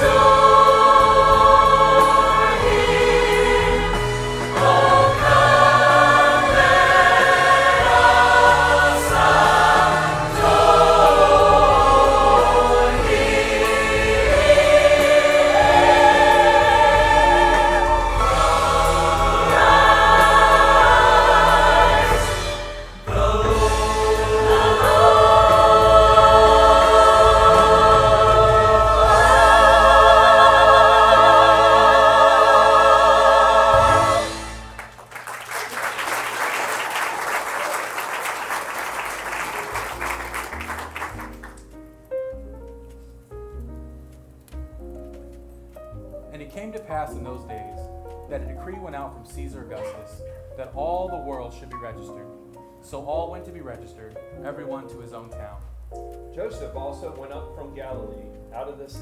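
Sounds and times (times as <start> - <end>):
choir singing: 0.0 - 35.1
musical accompaniment with bass line: 0.0 - 35.1, 39.4 - 59.0.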